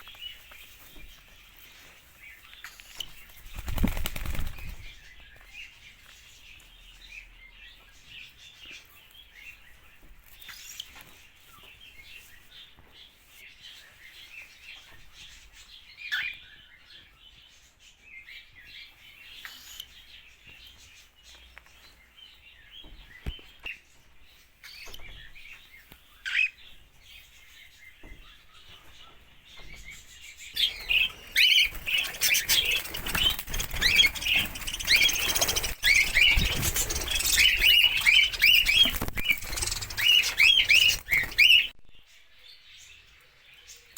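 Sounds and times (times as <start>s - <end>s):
birds chirping and chattering: 0.0s - 43.9s.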